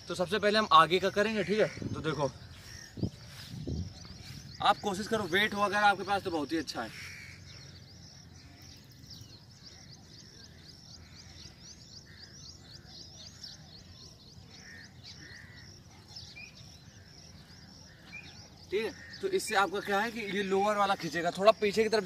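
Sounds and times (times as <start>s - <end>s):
birds chirping: 0.0s - 22.0s
lower bird calls: 0.0s - 22.0s.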